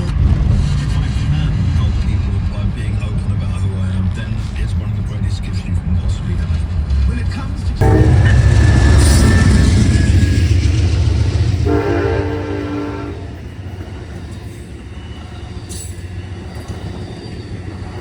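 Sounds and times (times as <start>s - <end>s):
locomotive engine rumble: 0.0s - 18.0s
train horn blast: 7.8s - 13.8s.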